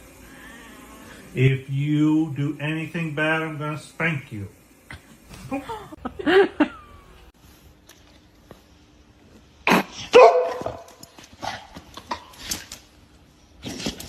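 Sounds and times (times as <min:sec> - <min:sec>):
dog barking: 0:10.0 - 0:11.0.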